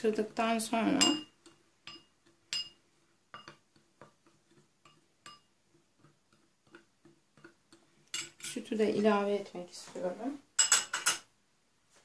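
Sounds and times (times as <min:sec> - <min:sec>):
spoon clinking against small dish: 0:01.0 - 0:03.6, 0:04.8 - 0:05.5.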